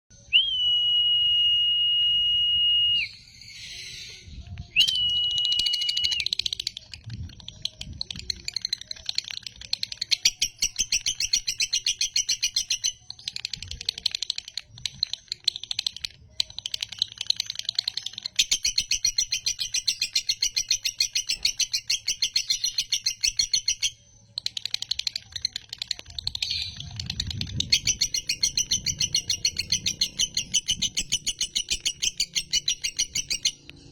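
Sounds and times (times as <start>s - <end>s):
high whistle-like tones: 0.1s - 6.8s
lovebird chattering trill: 4.9s - 33.9s.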